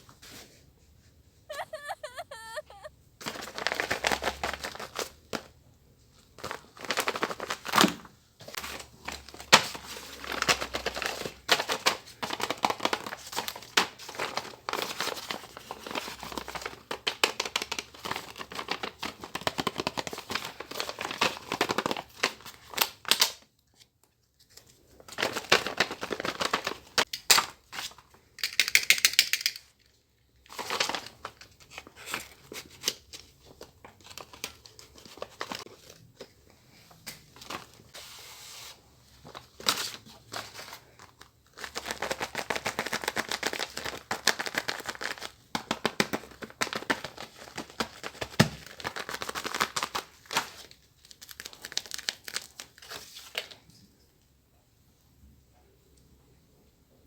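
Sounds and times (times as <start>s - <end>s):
paper crinkling and rustling: 6.2s - 28.1s, 30.5s - 36.4s, 37.0s - 53.6s.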